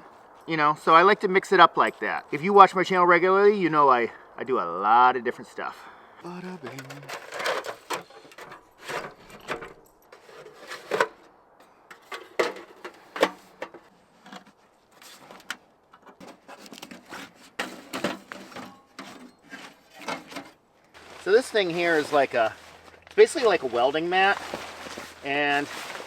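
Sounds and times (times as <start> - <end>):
rustling: 6.6 - 26.0.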